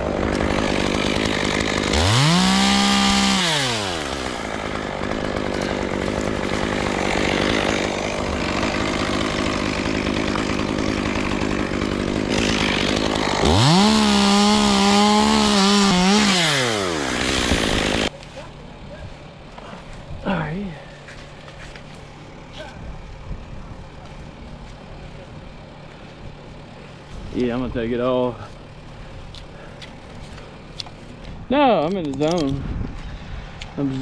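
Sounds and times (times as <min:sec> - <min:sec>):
chainsaw revving: 0:00.0 - 0:18.1.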